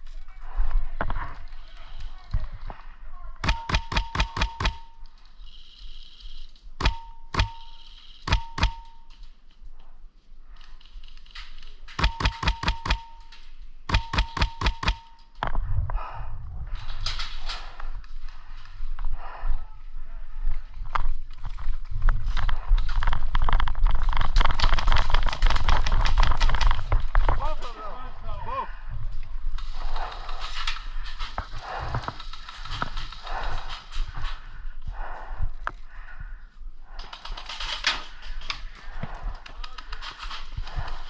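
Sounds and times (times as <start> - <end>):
airsoft gun shots: 3.4 - 5.0, 6.8 - 9.0, 12.0 - 13.3, 13.9 - 15.2.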